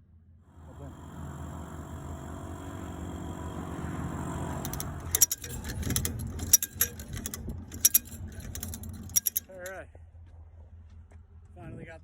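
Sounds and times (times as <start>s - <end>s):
vehicle engine running: 0.0s - 12.0s
metallic clinks and rattles: 4.6s - 9.8s.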